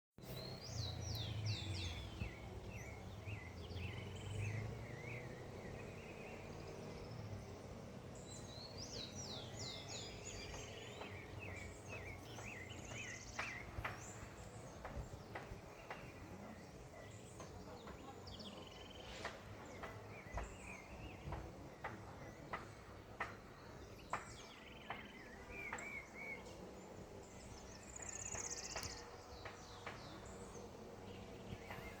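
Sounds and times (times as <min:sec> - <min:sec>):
steady background noise: 0:00.2 - 0:32.0
whistled bird notes: 0:08.3 - 0:32.0.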